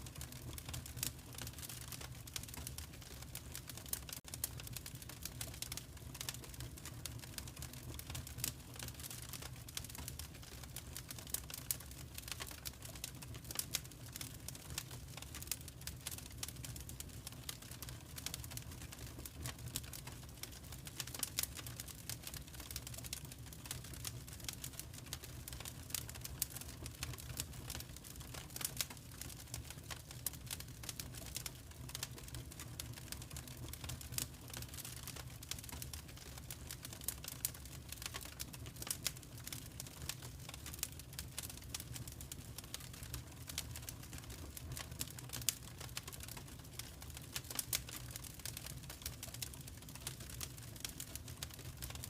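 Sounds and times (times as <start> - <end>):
fire crackling in fireplace: 0.0 - 52.0.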